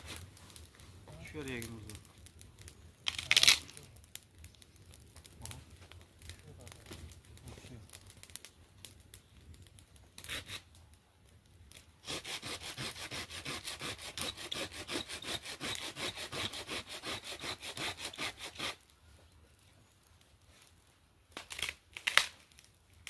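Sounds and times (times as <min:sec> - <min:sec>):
hand saw cutting wood: 0:12.0 - 0:18.8.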